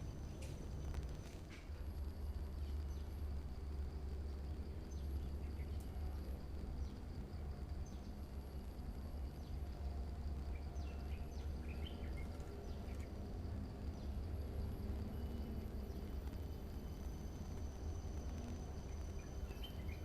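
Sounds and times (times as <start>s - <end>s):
faint high whine: 0.0s - 20.0s
birds chirping: 15.2s - 20.0s.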